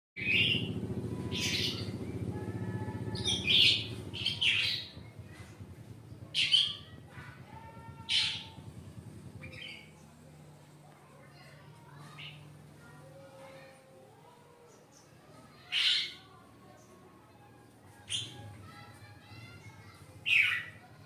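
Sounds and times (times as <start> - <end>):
low buzzing hum: 0.2 - 14.6.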